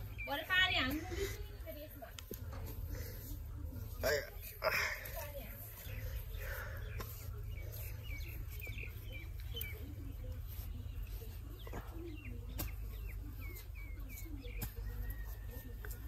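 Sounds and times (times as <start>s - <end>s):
small bird chirping: 5.6s - 16.0s.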